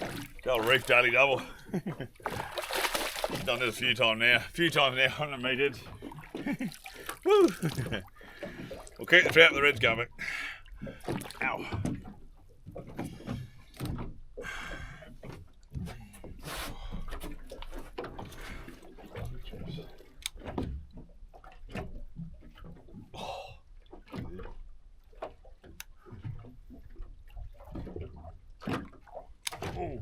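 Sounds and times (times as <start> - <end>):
knocks and clatter on boat: 0.0 - 6.8, 7.6 - 23.2, 23.8 - 30.0
water splashing and dripping: 0.0 - 9.5.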